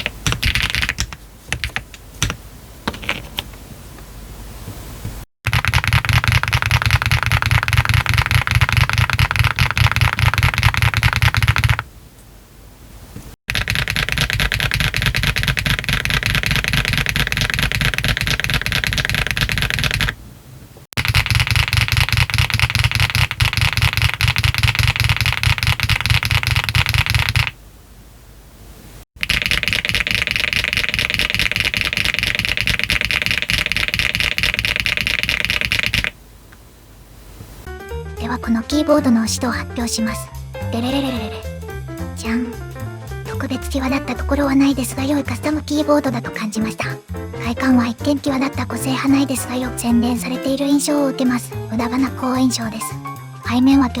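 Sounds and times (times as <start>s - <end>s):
typing on mechanical keyboard: 0.0s - 2.4s, 5.5s - 11.8s, 13.5s - 20.2s, 21.0s - 27.6s, 29.2s - 36.2s.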